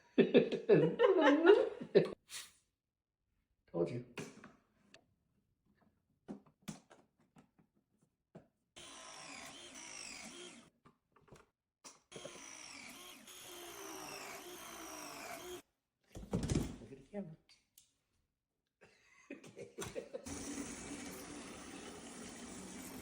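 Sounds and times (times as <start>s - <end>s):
power drill running: 8.8s - 10.7s, 12.1s - 15.6s, 20.3s - 23.0s.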